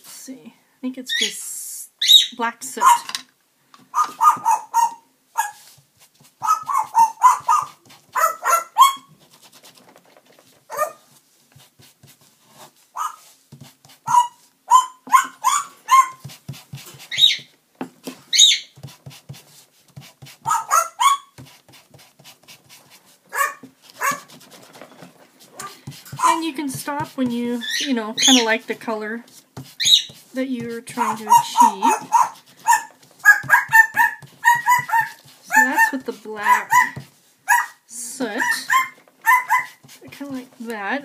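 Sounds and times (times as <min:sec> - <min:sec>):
shrill bird calls: 0:02.0 - 0:02.4, 0:17.1 - 0:17.5, 0:18.3 - 0:18.7, 0:27.6 - 0:28.5, 0:29.8 - 0:30.1
bird making bark-like calls: 0:03.9 - 0:05.5, 0:31.0 - 0:37.8.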